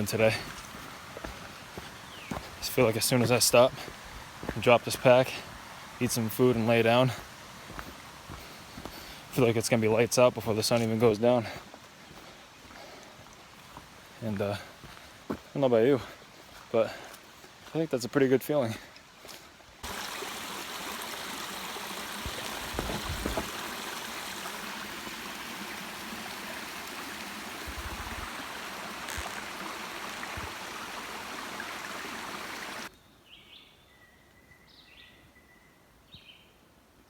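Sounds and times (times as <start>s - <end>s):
running water rushing: 0.0s - 32.9s
low bumps: 22.2s - 23.6s.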